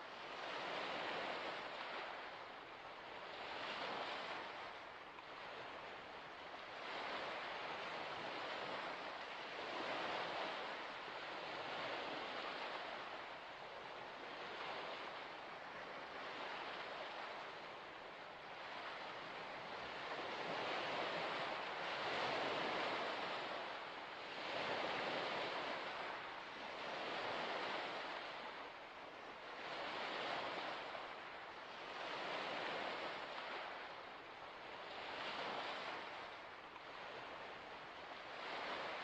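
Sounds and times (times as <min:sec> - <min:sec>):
waves washing onto shore: 0:00.0 - 0:39.0.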